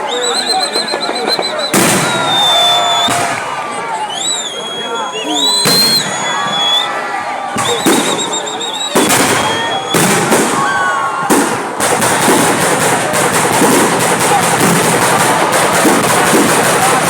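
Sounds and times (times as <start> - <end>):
firework warbling whistle: 0.0 - 7.0, 7.6 - 10.7
crowd voices: 0.0 - 17.0
firework crackling: 0.6 - 3.5, 9.0 - 10.7, 11.3 - 17.0
firework bangs: 0.6 - 3.6, 5.6 - 6.3, 7.5 - 17.0.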